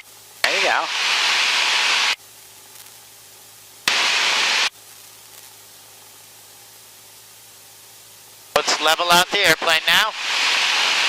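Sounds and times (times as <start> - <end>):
radio static bursts: 0.0 - 2.2, 3.9 - 4.7, 8.6 - 11.0
aircraft engine drone: 8.5 - 11.0.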